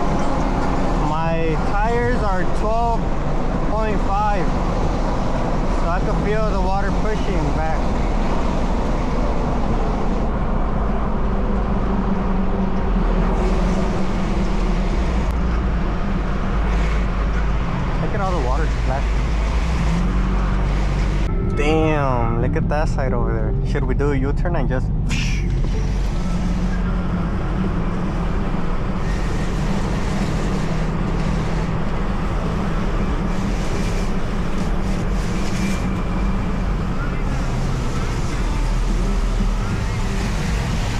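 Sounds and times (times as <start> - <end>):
tyres spraying through water: 0.0 - 21.3, 25.1 - 40.9
engine and road drone: 0.0 - 40.9
tyres hissing through water: 25.1 - 40.9.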